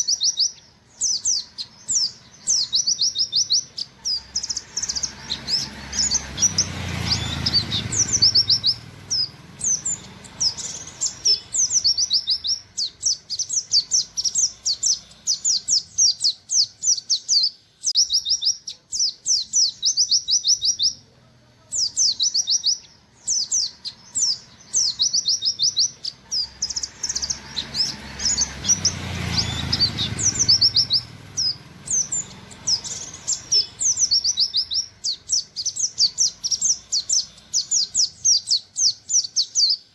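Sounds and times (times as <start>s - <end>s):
white-eye singing sharp notes: 21.8s - 39.9s.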